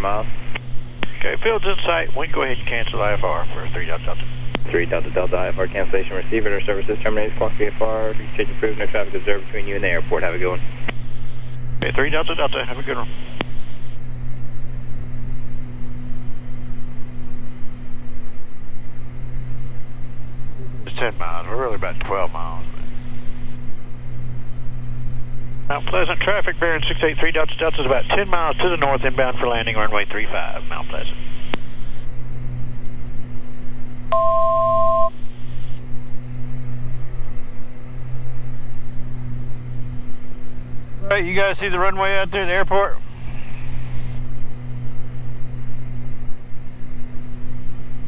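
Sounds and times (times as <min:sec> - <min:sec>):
aircraft piston engines droning: 0:00.0 - 0:34.1, 0:35.1 - 0:48.0
click: 0:31.5 - 0:31.7
two-tone electronic beep: 0:34.1 - 0:35.1.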